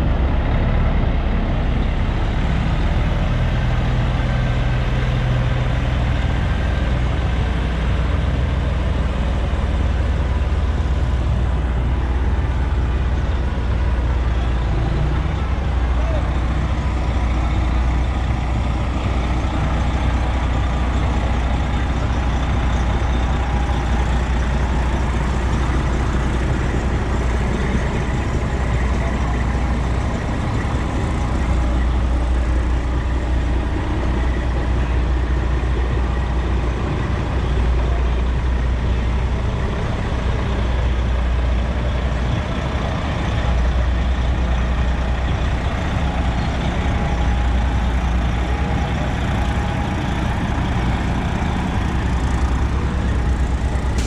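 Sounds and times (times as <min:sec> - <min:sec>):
diesel truck engines rumbling: 0:00.0 - 0:54.0.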